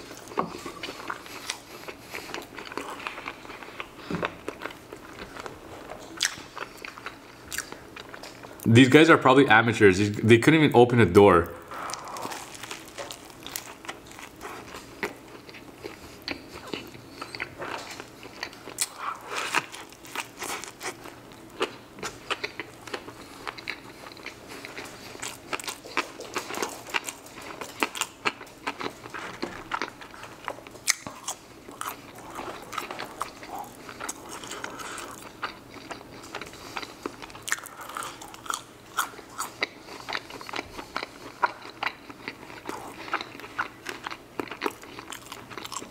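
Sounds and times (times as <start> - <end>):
crunchy chewing: 0.0 - 8.6, 11.7 - 45.9.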